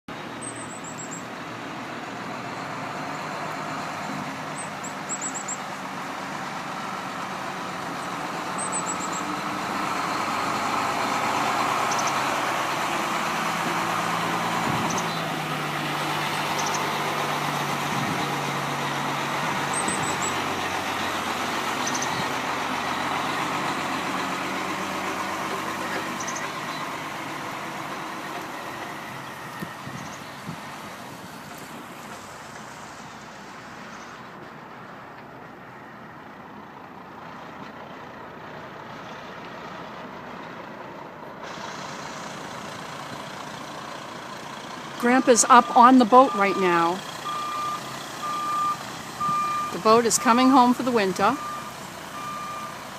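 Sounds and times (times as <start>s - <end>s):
truck engine running: 0.1s - 52.9s.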